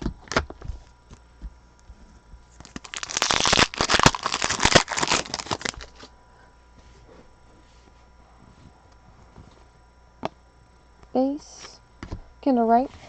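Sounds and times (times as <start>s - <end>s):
foil pack tearing and crinkling: 2.6s - 6.1s.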